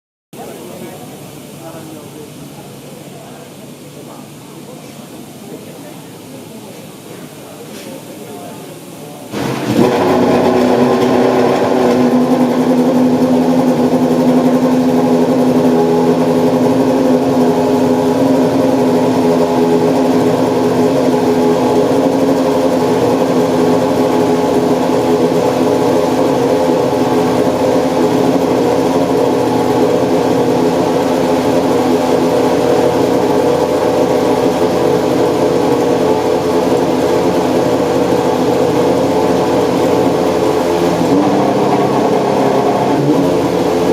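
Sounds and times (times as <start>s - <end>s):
race car engine idling: 8.8s - 43.9s.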